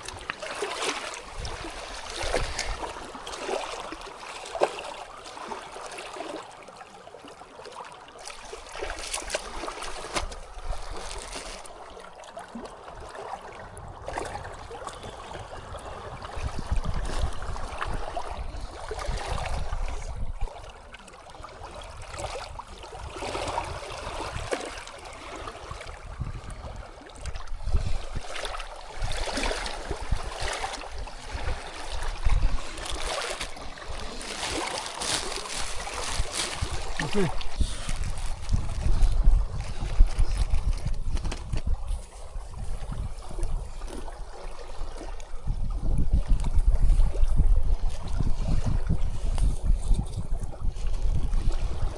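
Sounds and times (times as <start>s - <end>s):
stream water rushing: 0.0s - 6.6s, 28.2s - 39.0s.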